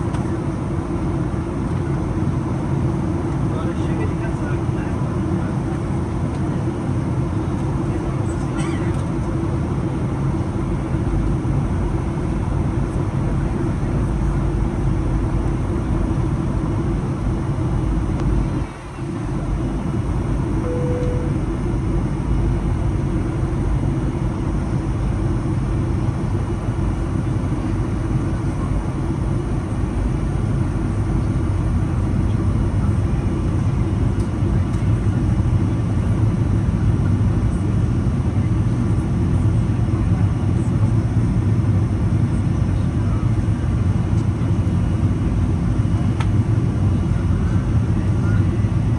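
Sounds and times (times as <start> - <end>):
airliner cabin engine roar: 0.0 - 48.9
short single tone: 20.6 - 21.5.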